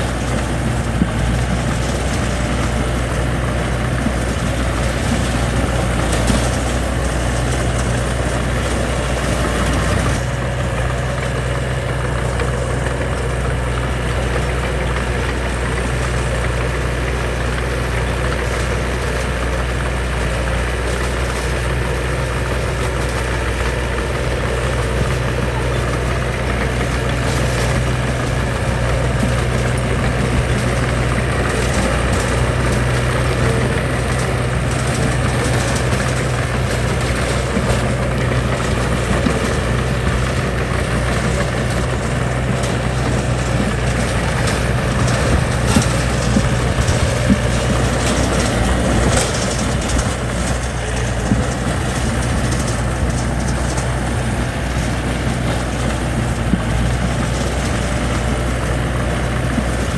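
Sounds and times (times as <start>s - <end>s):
diesel construction machine engine: 0.0s - 59.9s.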